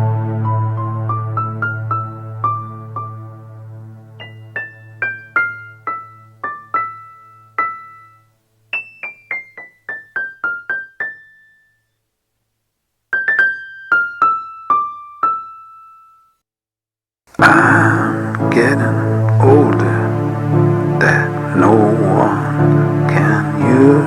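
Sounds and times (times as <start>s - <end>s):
low held keyboard note: 17.4s - 24.0s.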